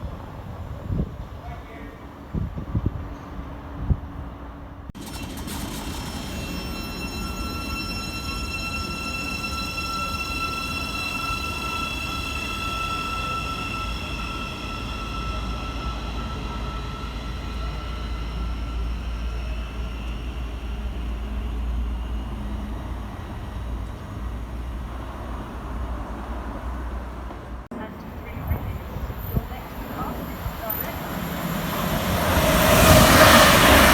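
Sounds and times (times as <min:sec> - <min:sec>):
low train rumble: 0:00.0 - 0:33.9
train high whine: 0:00.0 - 0:33.9.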